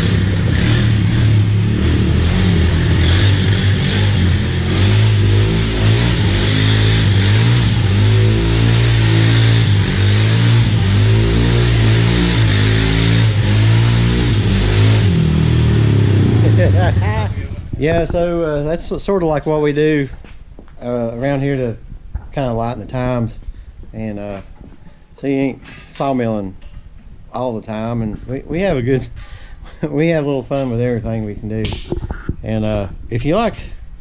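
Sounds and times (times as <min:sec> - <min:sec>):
car engine revving hard: 0:00.0 - 0:17.6.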